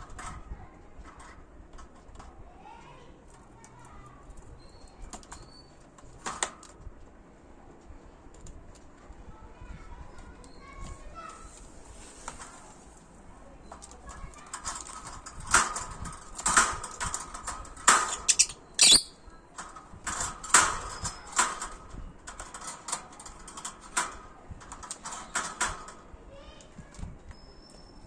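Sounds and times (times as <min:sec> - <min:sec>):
wire birdcage rattling: 0:13.8 - 0:26.0.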